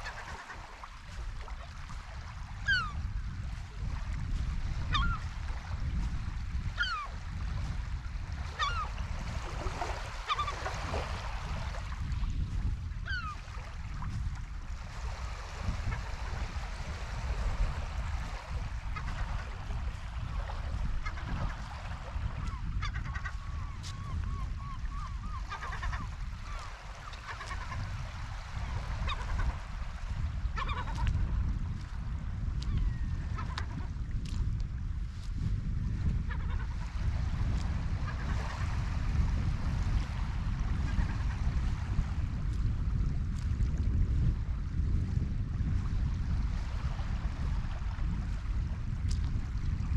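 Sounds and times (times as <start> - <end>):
wind rumble on microphone: 0.0 - 49.9
seagulls calling: 2.6 - 3.0, 4.9 - 5.2, 6.8 - 7.2, 8.5 - 9.0, 10.2 - 10.6, 13.1 - 13.4, 22.4 - 27.8, 30.6 - 31.1.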